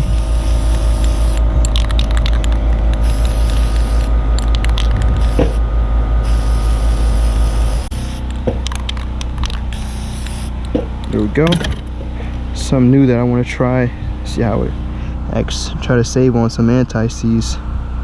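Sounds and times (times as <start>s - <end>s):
aerosol spray can hissing: 0.0s - 1.4s, 3.0s - 4.6s, 5.2s - 5.6s, 6.2s - 8.3s, 9.7s - 10.6s
steady low drone: 0.0s - 18.0s.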